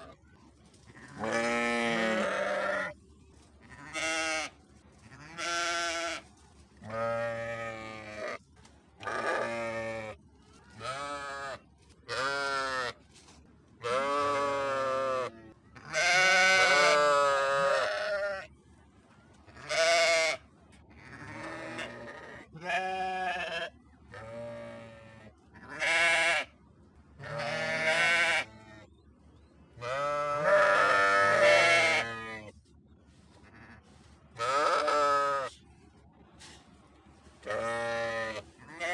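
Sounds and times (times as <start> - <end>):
sheep bleating: 1.0 - 3.0, 3.7 - 4.5, 5.1 - 6.2, 10.8 - 13.0, 13.8 - 18.5, 19.6 - 20.4, 21.0 - 26.5, 27.2 - 28.6, 29.8 - 32.5, 34.4 - 35.6, 37.4 - 38.9.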